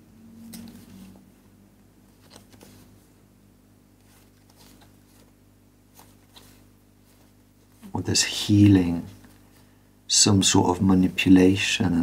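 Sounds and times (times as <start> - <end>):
low steady hum: 0.0 - 12.0
cards clicking and rustling: 2.2 - 2.9.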